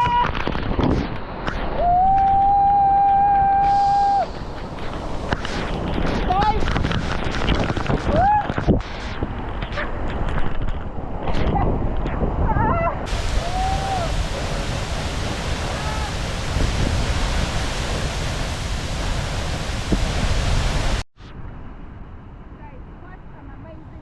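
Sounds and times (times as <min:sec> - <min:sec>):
waterfall rushing: 0:01.7 - 0:06.1, 0:13.1 - 0:21.0.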